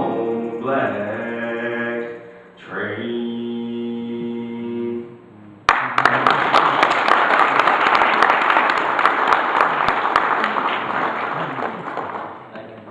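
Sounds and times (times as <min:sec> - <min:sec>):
audience applause: 0:05.7 - 0:12.5.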